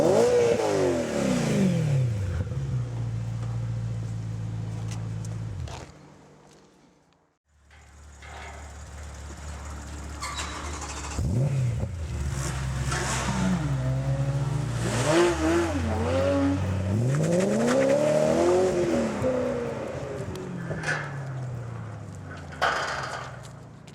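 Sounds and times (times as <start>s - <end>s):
car engine revving: 0.0s - 4.9s, 9.1s - 22.5s.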